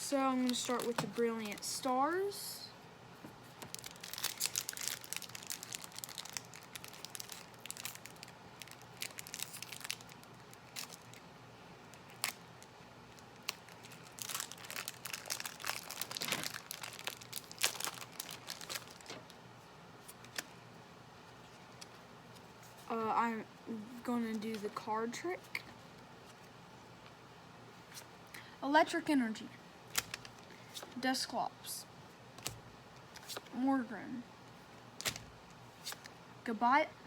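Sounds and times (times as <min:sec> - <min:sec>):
foil wrapper crinkling: 0:00.3 - 0:02.0, 0:03.6 - 0:11.2, 0:11.9 - 0:12.5, 0:13.1 - 0:19.4, 0:29.9 - 0:30.5.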